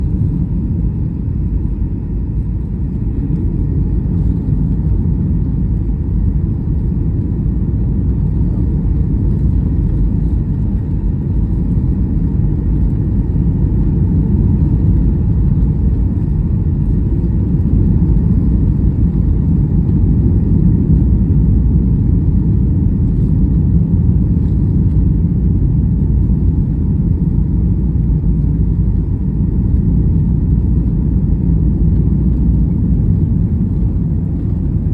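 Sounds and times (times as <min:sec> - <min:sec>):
airliner cabin rumble: 0:00.0 - 0:34.9.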